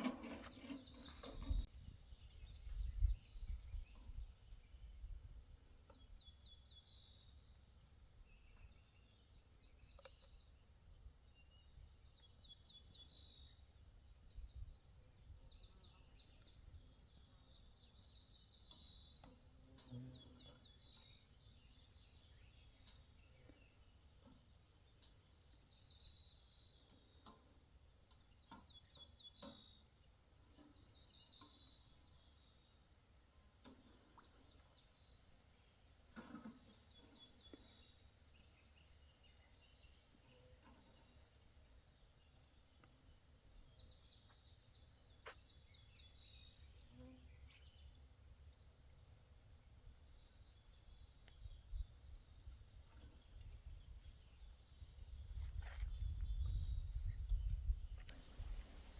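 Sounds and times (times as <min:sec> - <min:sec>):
small bird chirping: 0:11.3 - 0:27.4, 0:36.8 - 0:58.9.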